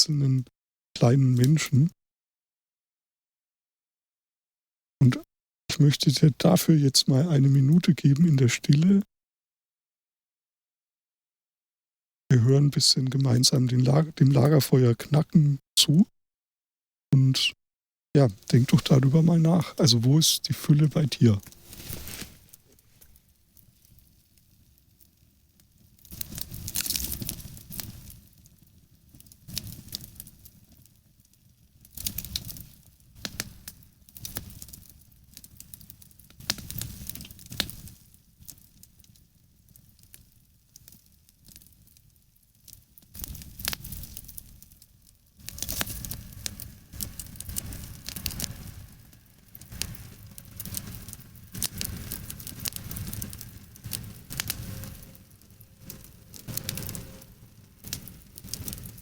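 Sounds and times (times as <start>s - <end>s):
campfire crackling and popping: 18.2s - 59.0s.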